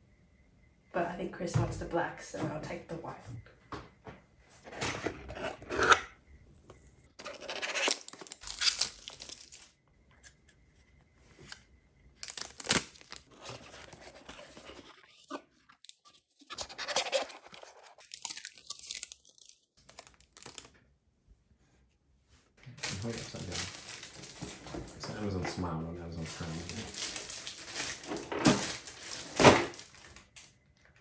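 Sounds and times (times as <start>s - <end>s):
packaging tearing and rustling: 7.2s - 9.7s, 12.2s - 20.7s, 22.8s - 24.9s, 26.2s - 30.4s.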